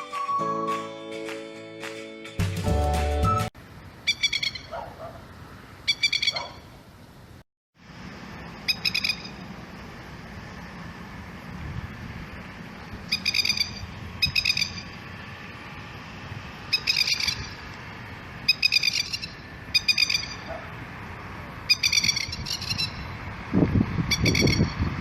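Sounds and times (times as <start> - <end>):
lapwing alarm call: 4.0 - 4.9, 5.9 - 6.7, 8.6 - 9.4, 13.1 - 15.0, 16.6 - 17.7, 18.4 - 20.7, 21.6 - 23.2, 24.1 - 24.8.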